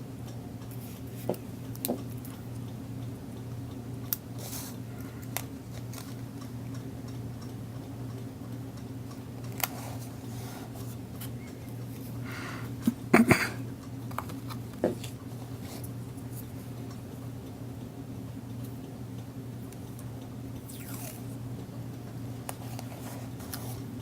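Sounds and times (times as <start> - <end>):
low electrical hum: 0.0 - 24.0
small clicks and handling noises: 0.6 - 12.1, 13.8 - 17.0.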